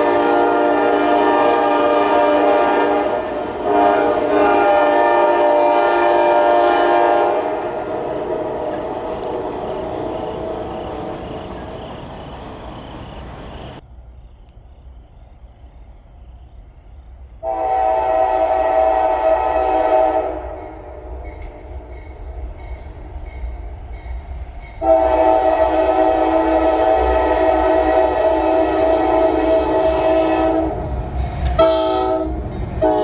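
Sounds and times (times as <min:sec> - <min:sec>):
locomotive air horn blasts: 0:00.0 - 0:13.8, 0:17.4 - 0:20.8, 0:24.8 - 0:33.0.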